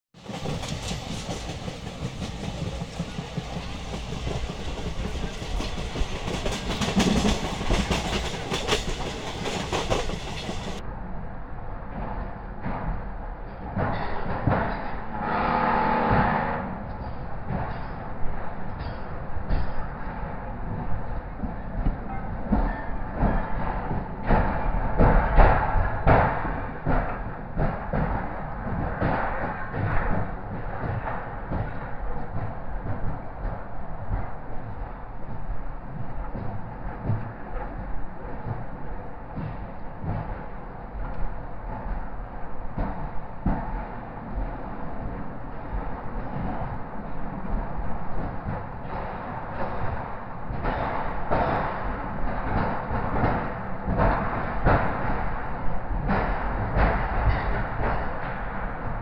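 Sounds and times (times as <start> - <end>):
wheels clacking over rail joints: 0.2 - 10.8, 16.8 - 59.0
wheels thudding over rail joints: 0.2 - 10.8
train rolling on rails: 0.2 - 59.0.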